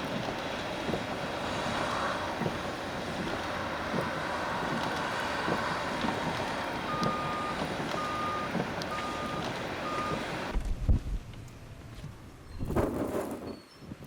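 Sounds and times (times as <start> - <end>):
steady rushing noise: 0.0 - 13.4
vehicle reversing alarm beeping: 3.9 - 10.5.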